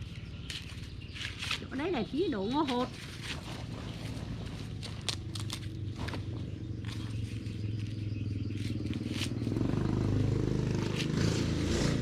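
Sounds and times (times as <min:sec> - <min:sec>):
small engine running: 0:03.3 - 0:12.0.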